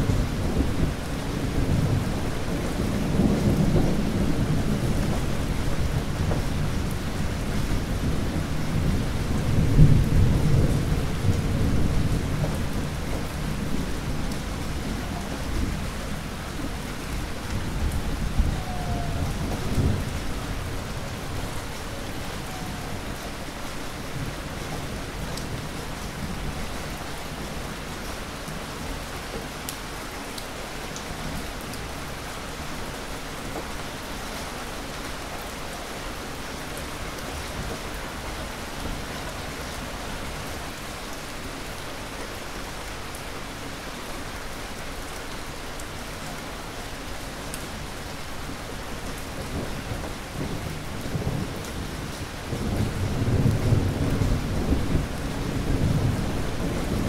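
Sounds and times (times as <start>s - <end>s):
thunder rumbling: 0.0s - 26.8s, 49.3s - 57.0s
heavy rain falling: 0.0s - 57.0s.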